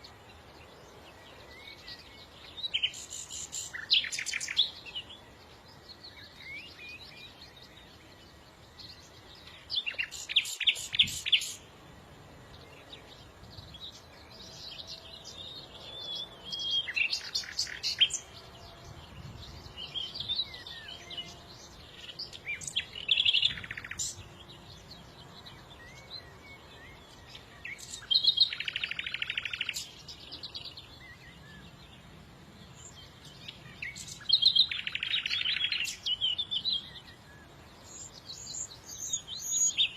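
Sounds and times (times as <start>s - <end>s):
songbirds twittering: 0.0s - 39.9s.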